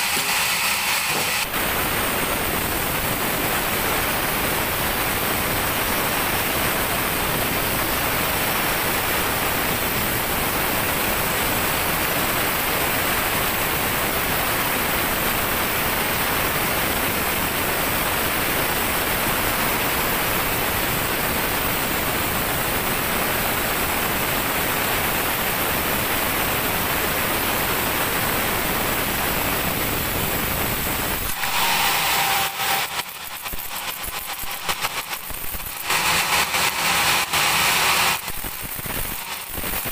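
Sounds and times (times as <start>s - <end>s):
band saw cutting log: 0.0s - 1.8s, 31.2s - 39.9s.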